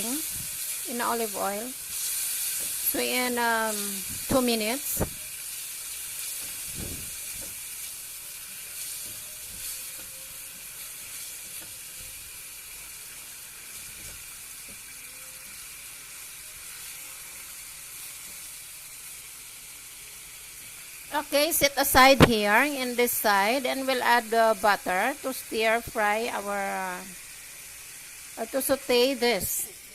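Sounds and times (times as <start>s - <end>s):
scallops sizzling in oil: 0.0s - 29.9s.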